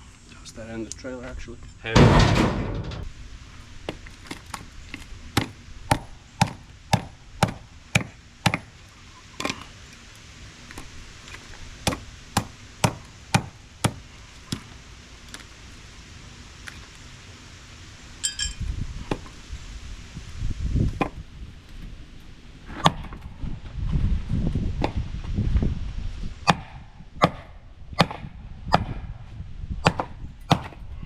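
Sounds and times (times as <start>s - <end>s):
metallic ping: 18.2s - 18.6s.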